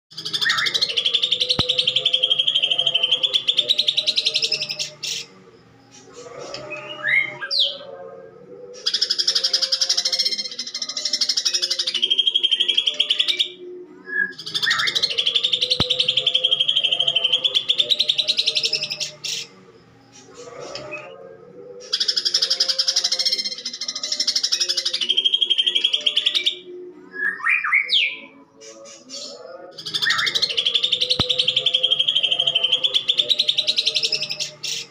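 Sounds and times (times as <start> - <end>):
bird harsh chattering song: 0.1 - 5.4, 14.4 - 20.6, 28.6 - 34.9.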